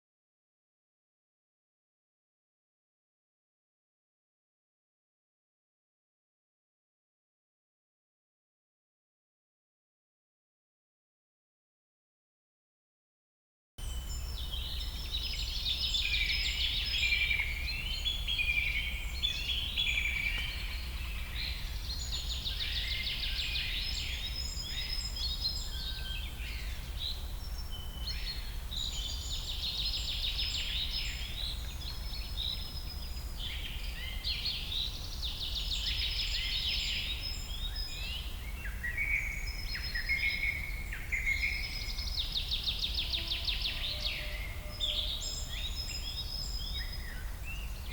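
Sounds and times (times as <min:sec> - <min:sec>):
birds singing and calling: 0:13.8 - 0:47.9.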